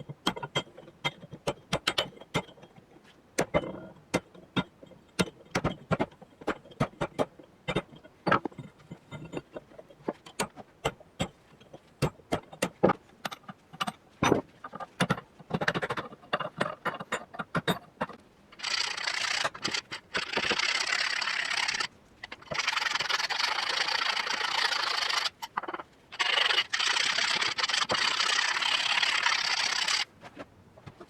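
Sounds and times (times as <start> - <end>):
hand tools clicking on iron: 0.0 - 2.8, 3.4 - 18.2.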